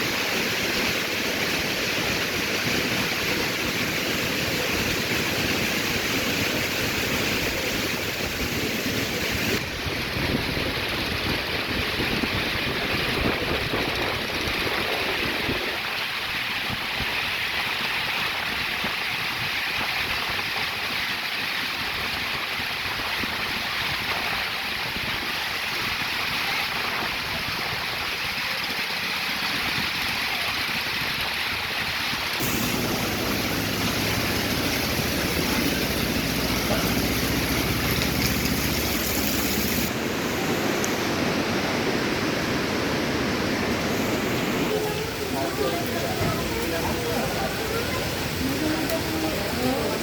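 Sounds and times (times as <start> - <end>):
heavy rain pouring: 0.0 - 50.0
low engine hum: 32.4 - 41.2.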